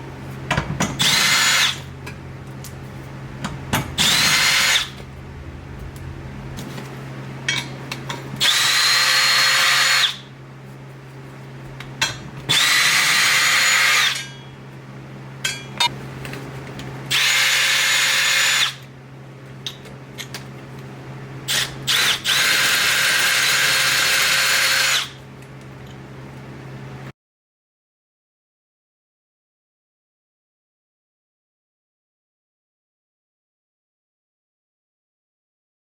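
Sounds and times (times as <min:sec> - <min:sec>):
power drill running: 0:01.0 - 0:01.9, 0:04.0 - 0:05.0, 0:08.4 - 0:10.3, 0:12.5 - 0:14.2, 0:17.1 - 0:18.8, 0:21.5 - 0:25.2
steady low hum: 0:01.7 - 0:09.0.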